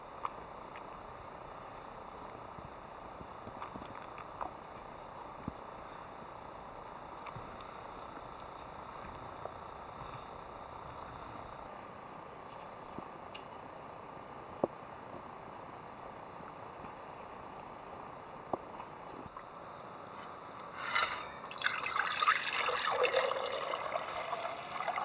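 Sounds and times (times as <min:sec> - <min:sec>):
insects shrilling: 0:19.4 - 0:25.0.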